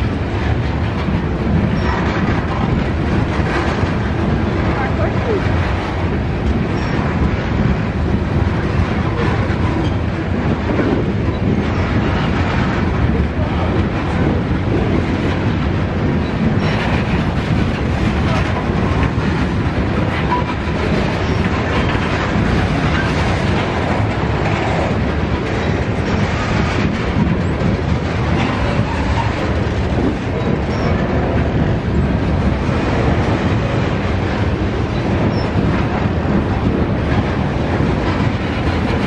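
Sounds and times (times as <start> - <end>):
freight train wheels clattering: 0.0 - 39.0.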